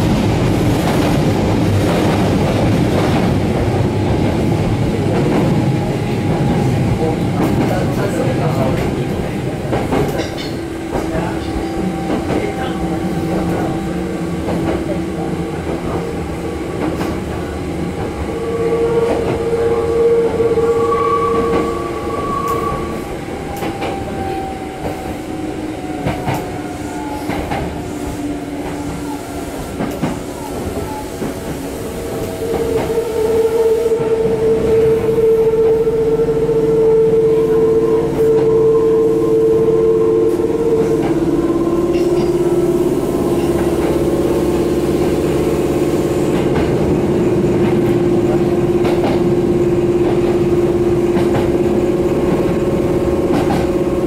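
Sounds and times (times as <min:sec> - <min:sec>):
train rumble: 0:00.0 - 0:54.0
train whine: 0:00.0 - 0:54.0
train wheels clicking over rail joints: 0:50.0 - 0:53.8.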